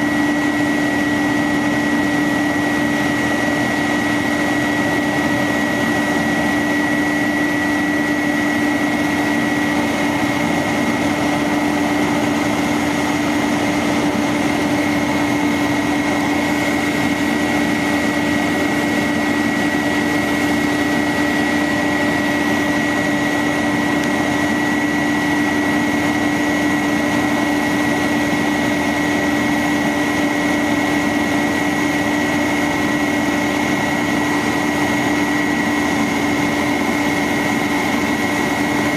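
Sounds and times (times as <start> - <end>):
high-pitched whine: 0.0 - 38.9.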